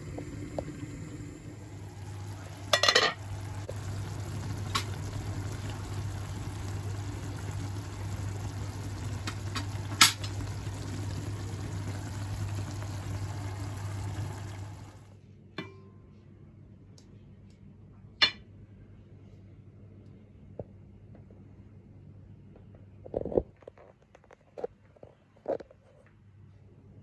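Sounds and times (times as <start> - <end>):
kitchen cooking noise with hum: 0.0 - 27.0
utensil clinking against cookware: 2.7 - 3.3.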